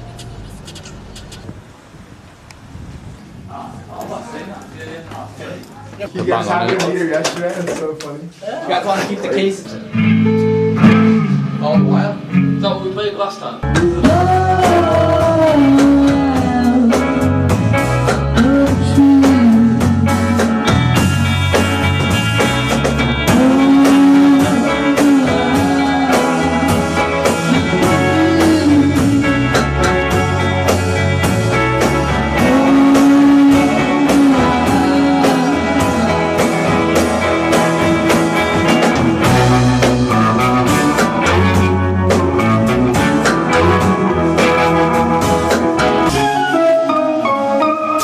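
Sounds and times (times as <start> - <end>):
electric guitar: 9.1 - 48.0
rock music: 9.4 - 48.0
drum kit beat: 10.0 - 12.8, 13.6 - 48.0.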